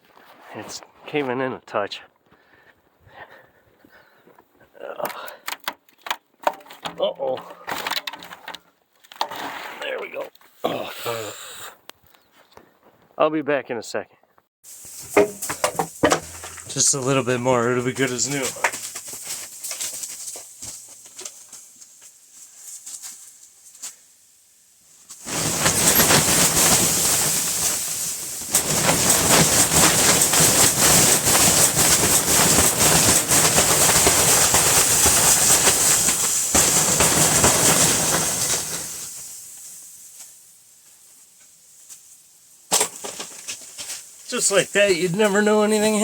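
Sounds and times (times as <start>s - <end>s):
snow sliding off plastic cover: 14.6s - 46.0s.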